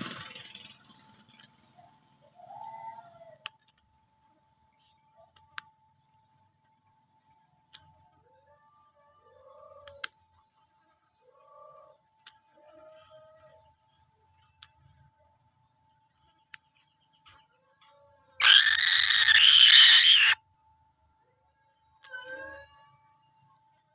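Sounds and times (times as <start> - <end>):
rapid high chirping: 18.4 - 20.4
sharp clicks: 18.4 - 20.4
short bird calls: 18.4 - 20.4.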